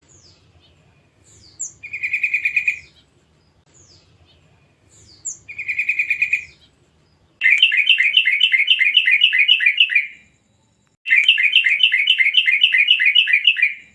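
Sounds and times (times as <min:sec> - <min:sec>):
bulbul chattering call: 0:07.4 - 0:10.2, 0:11.1 - 0:13.9.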